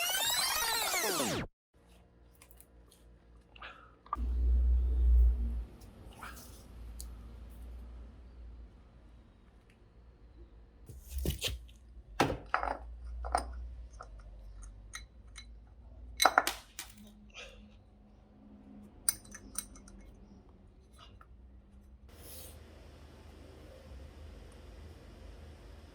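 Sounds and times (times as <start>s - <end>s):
tools and parts clinking: 12.4s - 17.2s, 19.0s - 21.2s.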